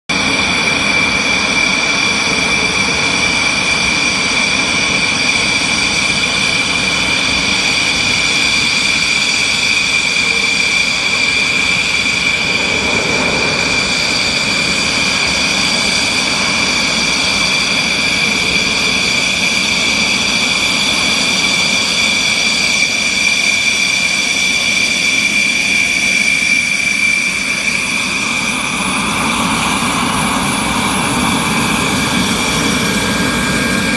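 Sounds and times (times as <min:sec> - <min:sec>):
jet engine whining: 0:00.1 - 0:33.9
rushing noise: 0:00.1 - 0:33.9.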